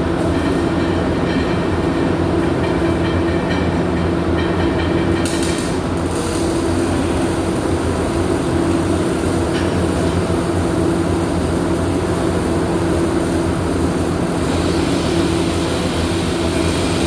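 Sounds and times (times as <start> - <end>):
workshop machinery drone: 0.0 - 17.0.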